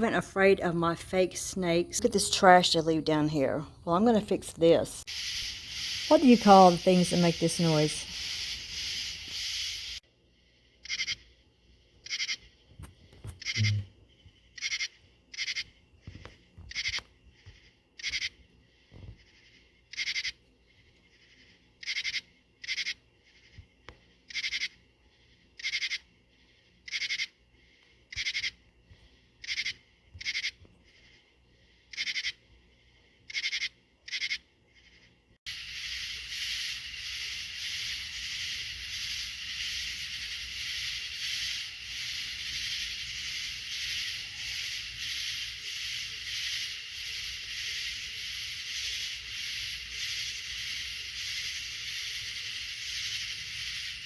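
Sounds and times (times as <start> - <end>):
steady hiss: 4.4 - 14.4, 34.8 - 54.0
small creature chirping: 10.8 - 11.2, 12.0 - 12.4, 13.4 - 13.9, 18.0 - 18.4, 28.1 - 28.6, 29.4 - 30.6, 31.9 - 32.4, 35.6 - 54.0.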